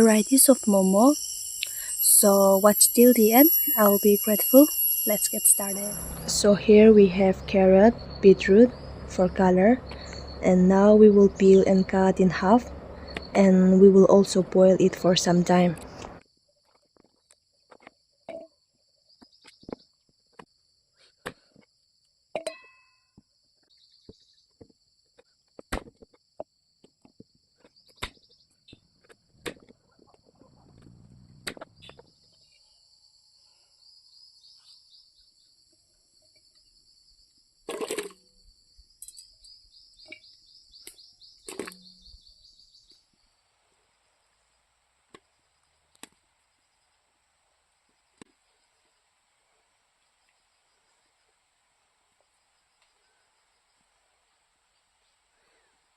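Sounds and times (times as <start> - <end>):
crickets chirring: 0.0 - 16.8, 26.6 - 49.0.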